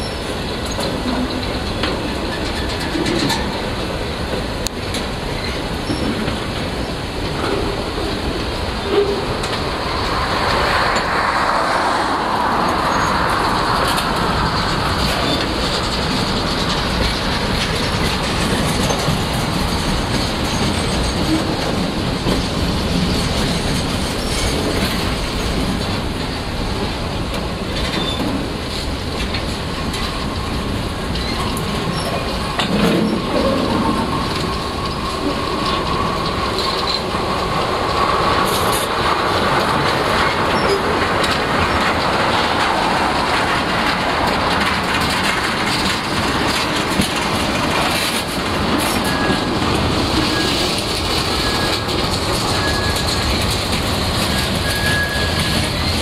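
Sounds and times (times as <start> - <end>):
high wheel and brake squeal: 0.0 - 1.4, 8.8 - 11.1, 12.6 - 14.0, 27.9 - 28.4, 48.8 - 56.0
freight cars rumbling on rails: 0.0 - 56.0.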